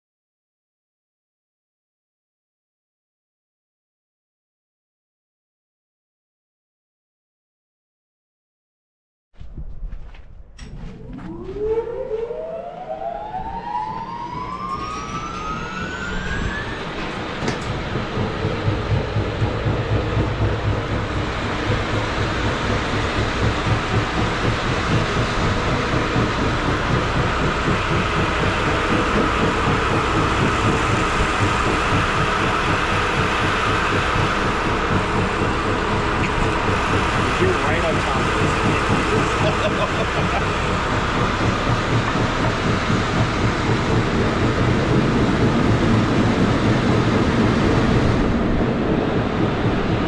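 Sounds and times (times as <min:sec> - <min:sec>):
circular saw machinery whining: 0:10.7 - 0:50.0.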